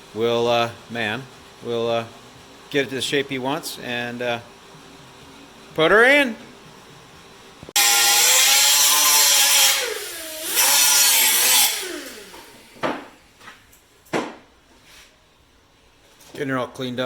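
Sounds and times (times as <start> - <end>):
power tool running on metal: 7.8 - 12.8.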